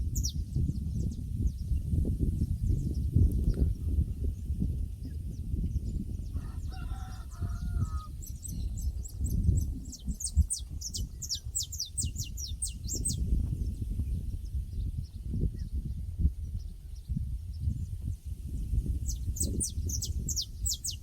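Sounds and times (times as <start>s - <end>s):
songbird chirping: 6.3s - 13.2s
rooster crowing: 6.4s - 8.1s.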